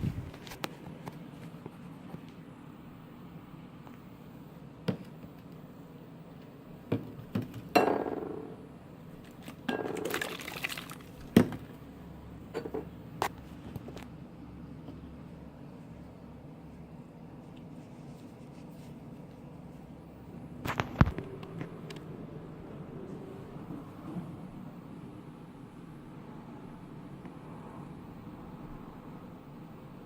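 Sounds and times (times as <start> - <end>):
liquid being poured: 9.2 - 11.6
containers and utensils clinking: 9.2 - 11.7.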